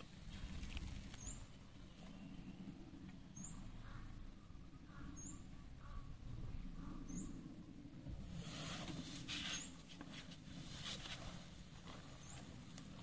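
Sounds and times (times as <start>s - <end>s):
bird chirping: 0.0s - 7.9s, 9.3s - 9.9s, 11.9s - 13.0s
low background noise: 0.0s - 13.0s.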